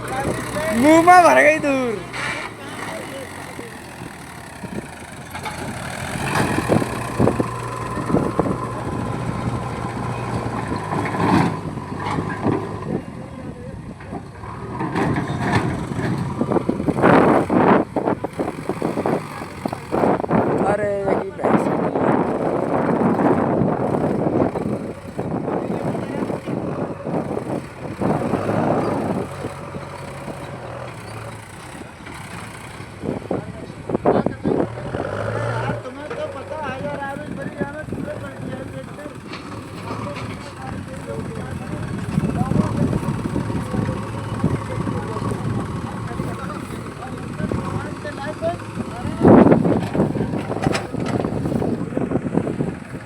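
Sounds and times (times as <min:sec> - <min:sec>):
diesel engine under load: 0:00.0 - 0:53.0
knocks and clanks: 0:04.7 - 0:12.9, 0:14.0 - 0:17.5, 0:38.1 - 0:44.7, 0:47.4 - 0:52.6.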